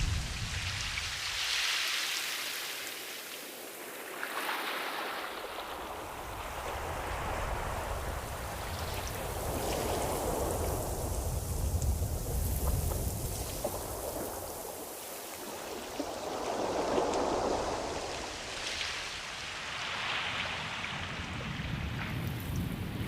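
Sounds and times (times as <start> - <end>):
deep surf rumble: 0.0 - 1.7, 5.4 - 14.9, 15.7 - 23.0
ocean waves washing in: 0.0 - 23.0.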